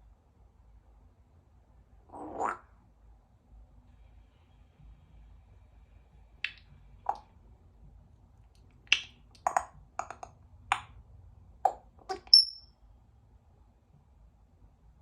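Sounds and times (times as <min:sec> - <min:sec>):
parrot clicking and popping: 0:06.5 - 0:07.2, 0:08.5 - 0:11.0
parrot whistling: 0:12.1 - 0:12.6.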